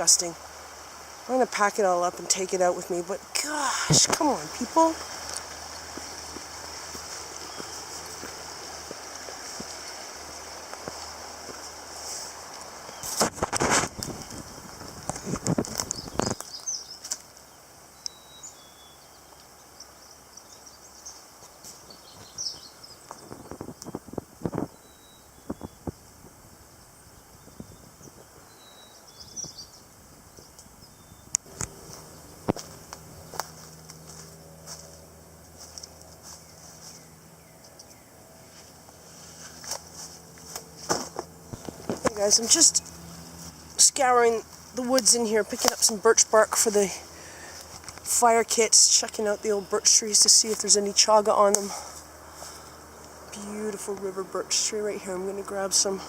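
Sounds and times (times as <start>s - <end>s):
small birds chirping: 0.0s - 13.4s, 14.0s - 56.0s
footsteps on forest floor: 3.4s - 17.3s, 31.4s - 37.7s, 38.4s - 48.2s, 50.2s - 53.9s
rustling and crunching: 3.4s - 17.4s, 30.3s - 48.2s.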